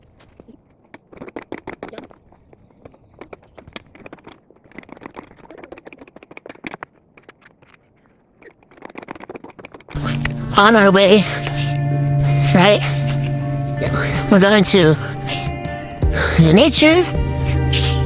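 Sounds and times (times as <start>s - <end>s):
rustling and crackling: 0.0s - 10.5s.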